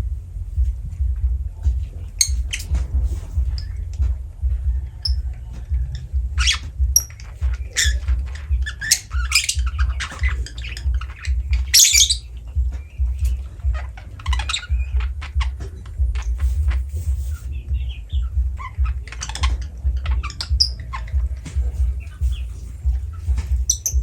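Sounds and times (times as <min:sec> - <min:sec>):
low regular pulsing: 0:00.0 - 0:24.0
bird squawks and chirps: 0:06.4 - 0:24.0.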